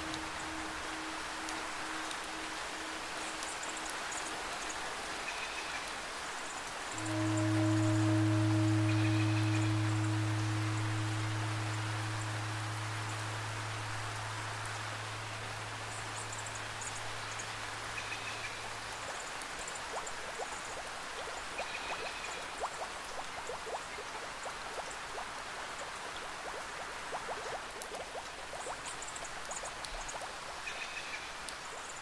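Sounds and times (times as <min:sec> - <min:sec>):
low sustained instrument tone: 0:00.0 - 0:05.4, 0:06.9 - 0:19.1
running water: 0:00.0 - 0:32.0
steady rain: 0:00.0 - 0:32.0.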